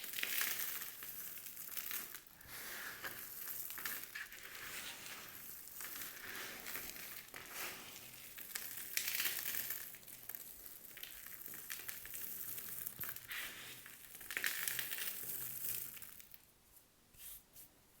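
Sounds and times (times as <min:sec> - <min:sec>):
dry soap crunching: 0:00.0 - 0:16.4.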